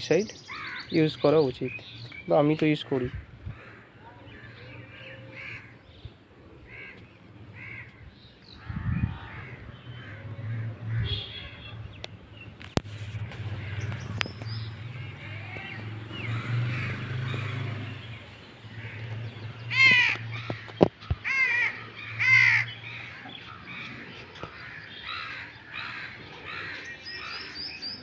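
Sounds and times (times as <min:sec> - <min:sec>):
faint birds chirping: 0:00.0 - 0:28.0
bird calling loudly: 0:00.3 - 0:01.3, 0:06.7 - 0:12.0, 0:13.0 - 0:28.0.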